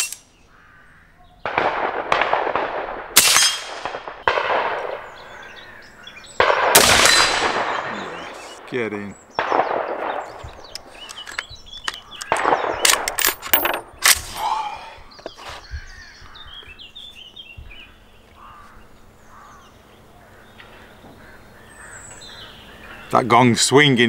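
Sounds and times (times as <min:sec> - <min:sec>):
birds chirping: 0:00.0 - 0:02.3, 0:03.9 - 0:24.0
rifle shots: 0:01.4 - 0:05.4, 0:06.4 - 0:08.7, 0:09.4 - 0:11.0, 0:11.9 - 0:14.4.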